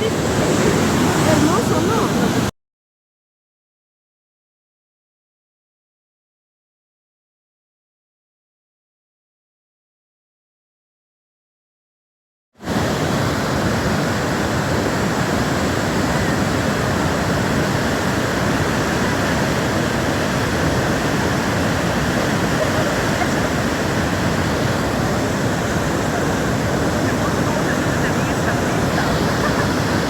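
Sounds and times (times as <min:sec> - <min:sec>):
powerful waterfall rushing: 0:00.0 - 0:02.5, 0:12.6 - 0:30.0.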